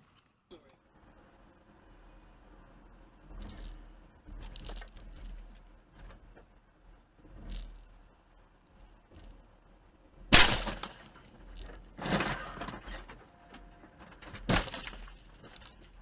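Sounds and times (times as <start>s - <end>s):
crunching impacts: 3.1s - 16.0s
vehicle crash: 10.3s - 16.0s.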